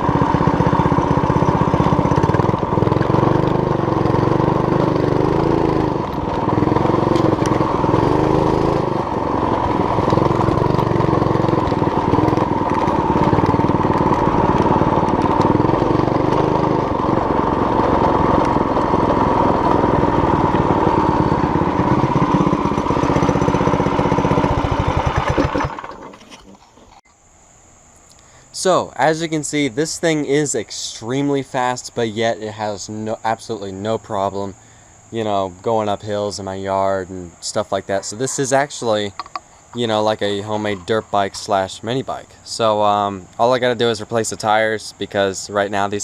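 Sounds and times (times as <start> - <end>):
mini bike engine revving: 0.0 - 27.0, 37.1 - 44.6.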